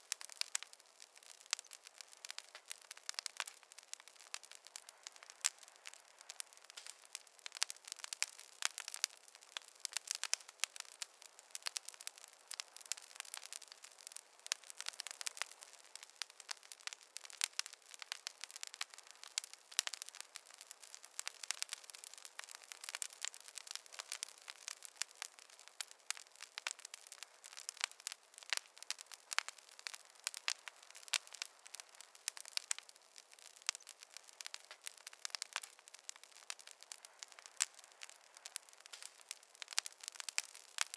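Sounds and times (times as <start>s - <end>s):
logs crackling in a fireplace: 0.0s - 40.9s.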